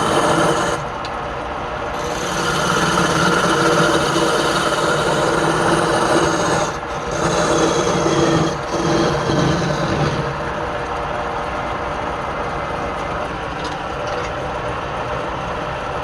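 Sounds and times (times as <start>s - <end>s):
wood lathe tool rasping: 0.0s - 0.9s, 2.0s - 10.8s.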